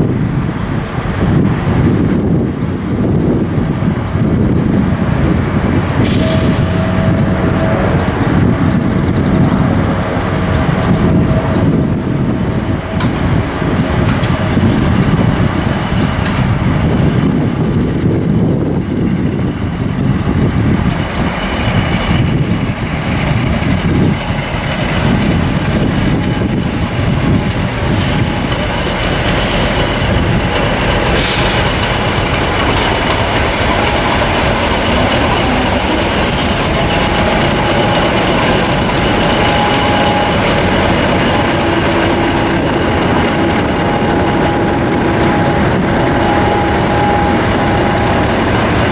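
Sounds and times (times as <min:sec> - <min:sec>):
locomotive diesel engine running: 0:20.9 - 0:48.9.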